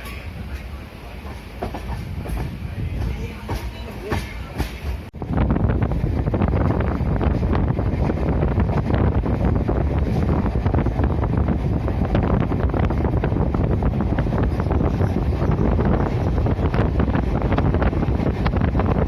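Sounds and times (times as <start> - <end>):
moving train rumble and clatter: 0.0 - 19.0
wind on microphone: 5.1 - 19.0.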